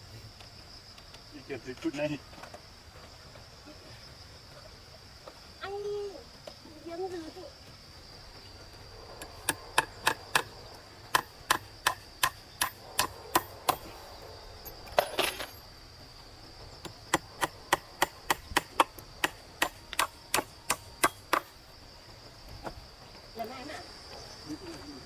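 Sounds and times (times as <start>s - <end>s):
hand tool striking wood: 9.2s - 14.0s, 16.8s - 21.6s.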